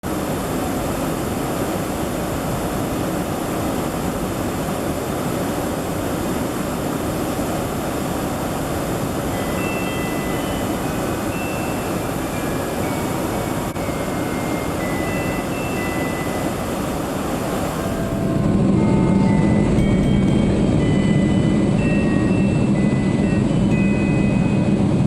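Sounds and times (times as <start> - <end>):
airliner cabin jet engine rush: 0.0 - 25.0
faint short high tones: 9.4 - 24.8.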